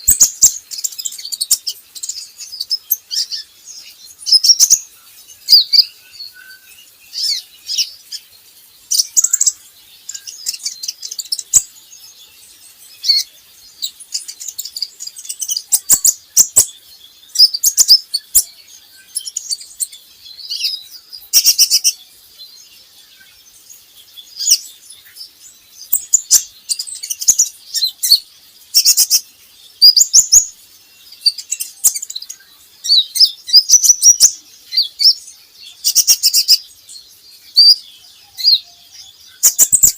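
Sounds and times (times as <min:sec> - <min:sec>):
sunbird chirping and twittering: 0:00.0 - 0:39.9.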